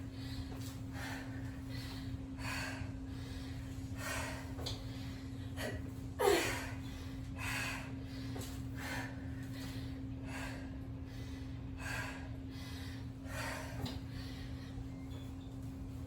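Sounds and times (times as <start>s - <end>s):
woman breathing hard: 0.0s - 15.1s.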